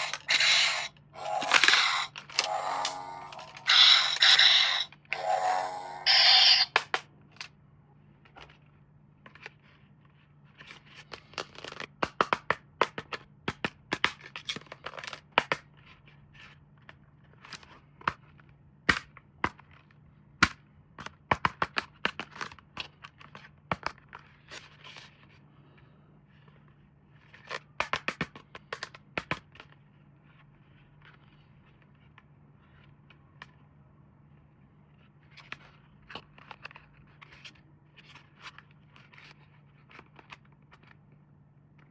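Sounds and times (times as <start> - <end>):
toy packaging being opened: 0.0 - 6.9.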